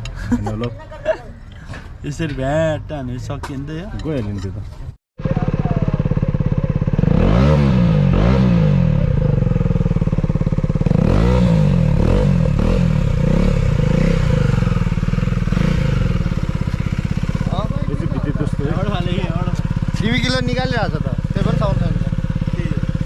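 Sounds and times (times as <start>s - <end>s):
motorcycle engine revving: 5.2s - 23.0s.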